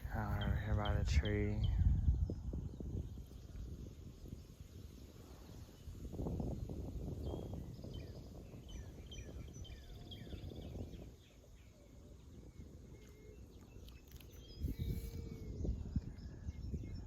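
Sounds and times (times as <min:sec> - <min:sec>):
birds chirping and calling: 0:00.0 - 0:17.0.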